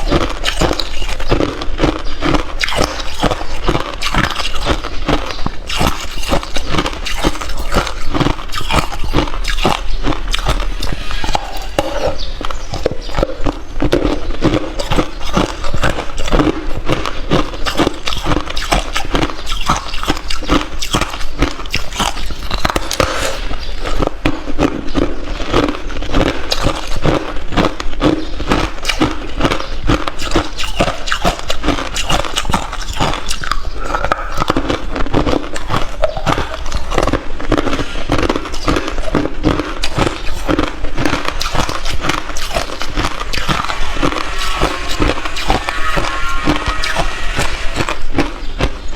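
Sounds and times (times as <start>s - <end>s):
person chewing ice: 0.0s - 48.9s.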